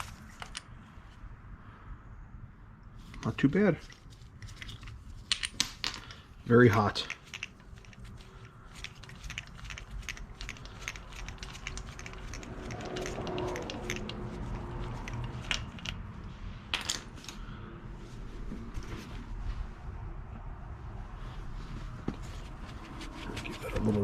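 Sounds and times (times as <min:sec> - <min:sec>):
metallic clicks of hand tools: 0:08.8 - 0:16.0.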